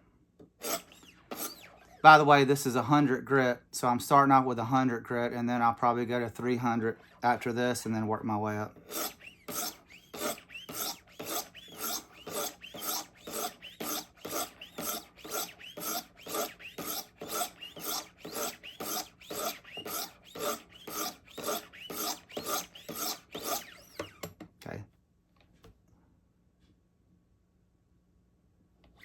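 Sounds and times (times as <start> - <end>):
sharpening stone rasping on knife blade: 8.9 - 24.0.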